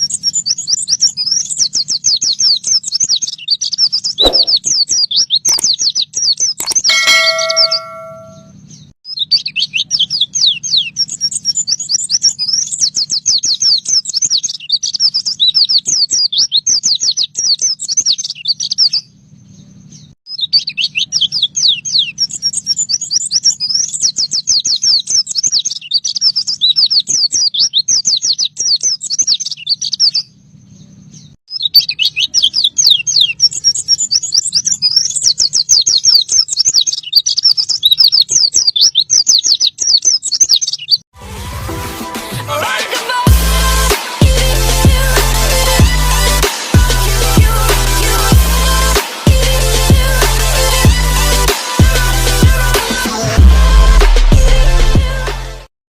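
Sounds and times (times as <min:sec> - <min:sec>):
bird rapid high chirping: 0:00.0 - 0:41.0.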